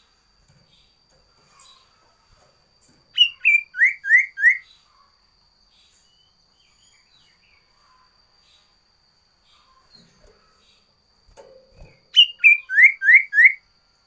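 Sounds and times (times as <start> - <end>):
songbird whistling: 3.1 - 4.8, 12.1 - 13.6.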